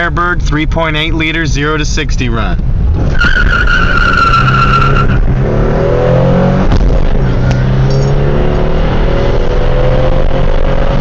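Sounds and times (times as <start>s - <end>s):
car engine accelerating: 2.7s - 11.0s.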